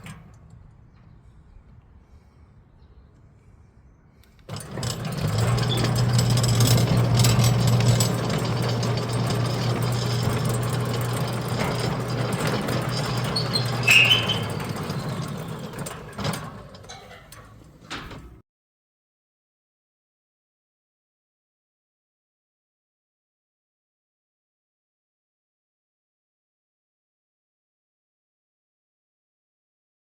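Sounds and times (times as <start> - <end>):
high squeak: 4.5 - 17.4
gate motor humming: 4.5 - 18.4
motor rattling vibration: 4.5 - 18.4.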